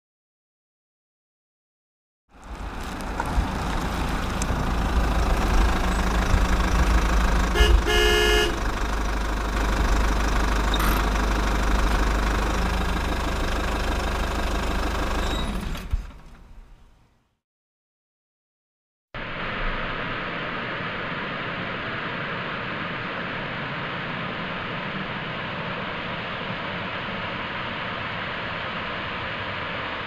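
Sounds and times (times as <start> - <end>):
vehicle engine rumbling: 2.3 - 17.3, 19.2 - 30.0
vehicle horn tooting: 7.5 - 8.8.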